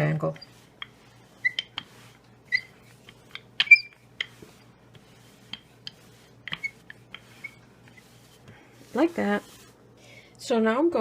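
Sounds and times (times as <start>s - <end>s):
rolling pin clicking and squeaking: 0.2s - 4.7s, 5.4s - 8.0s.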